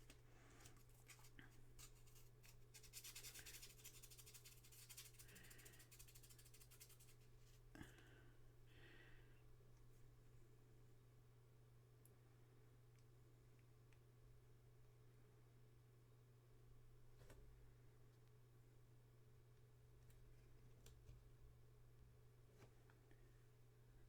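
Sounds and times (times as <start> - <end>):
rubbing and scratching: 0.0 - 7.6.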